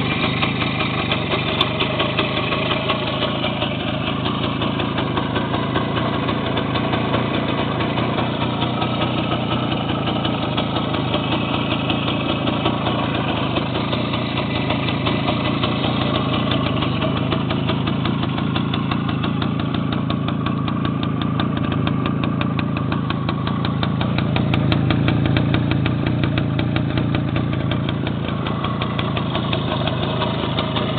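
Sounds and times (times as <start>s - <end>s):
two-stroke motorcycle engine idling: 0.0s - 30.9s.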